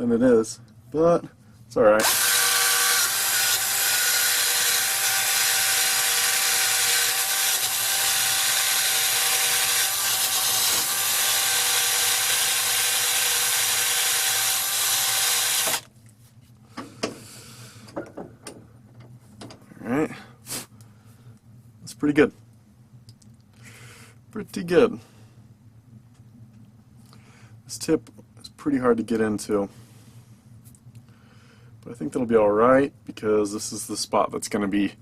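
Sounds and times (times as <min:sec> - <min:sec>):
power tool whining and scraping: 0:02.0 - 0:15.9.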